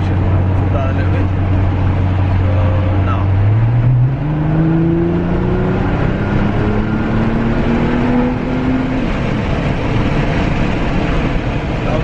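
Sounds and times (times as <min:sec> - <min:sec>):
car engine revving under acceleration: 0:00.0 - 0:12.0
road and tyre noise: 0:00.0 - 0:12.0.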